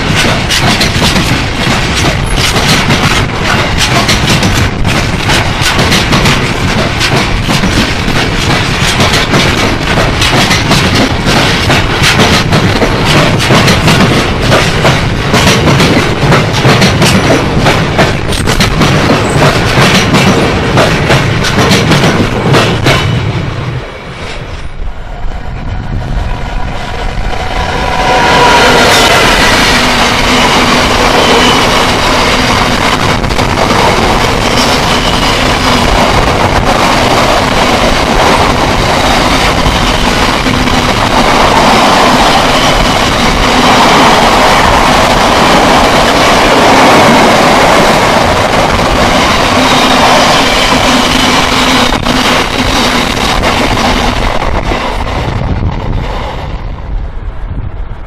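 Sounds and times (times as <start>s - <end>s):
wheels knocking on rails: 0.0s - 23.2s.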